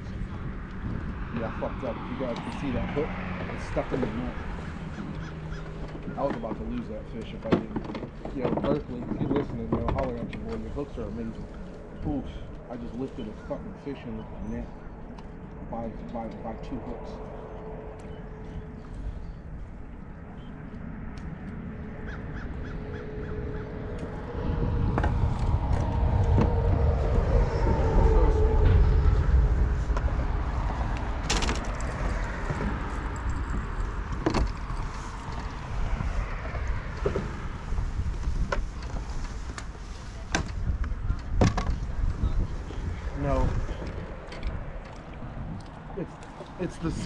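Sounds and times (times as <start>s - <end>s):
low rumble: 0.0s - 47.0s
gear clicks and knocks: 4.9s - 10.7s.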